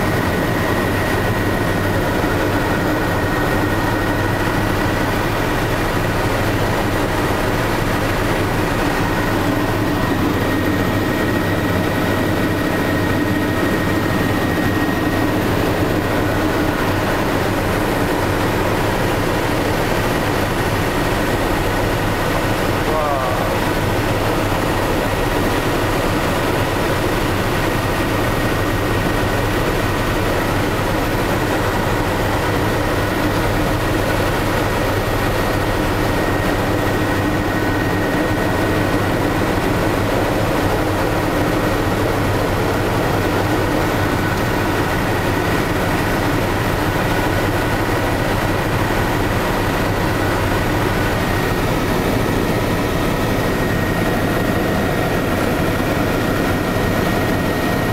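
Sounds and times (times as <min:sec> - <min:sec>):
helicopter engine and rotor noise: 0:00.0 - 0:57.9.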